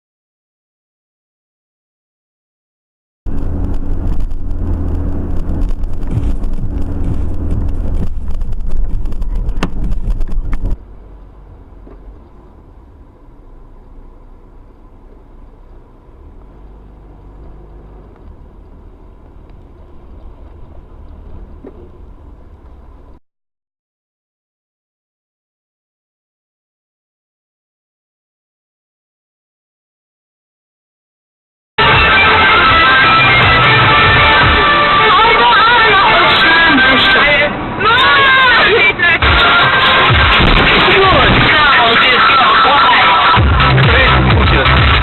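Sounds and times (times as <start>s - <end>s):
steady hum: 3.3s - 16.2s
car engine and road rumble: 3.3s - 23.2s, 31.8s - 45.0s.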